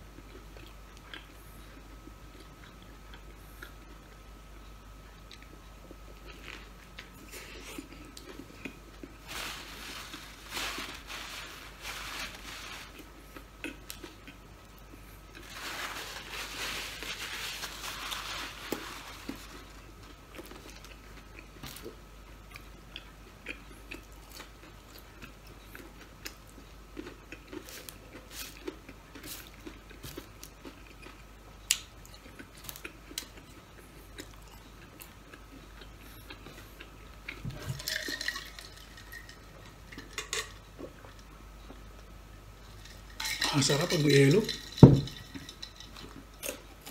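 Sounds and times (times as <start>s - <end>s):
person chewing burger: 0.1s - 10.4s, 12.8s - 15.6s, 18.1s - 37.6s
crunchy chewing: 0.1s - 41.8s.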